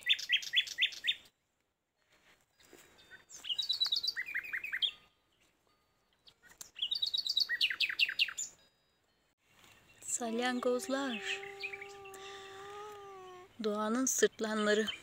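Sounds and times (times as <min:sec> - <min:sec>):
songbird singing: 0:00.0 - 0:01.4, 0:02.6 - 0:15.0.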